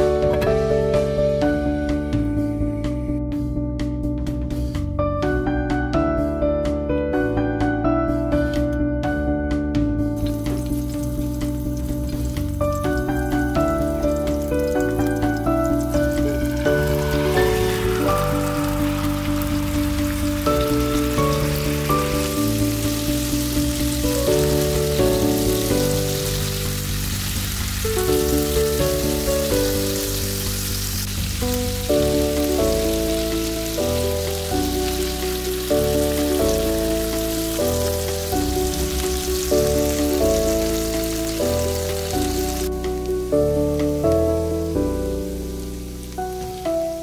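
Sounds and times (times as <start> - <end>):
background music with held notes: 0.0 - 47.0
chicken frying in oil: 10.2 - 44.2, 45.0 - 47.0.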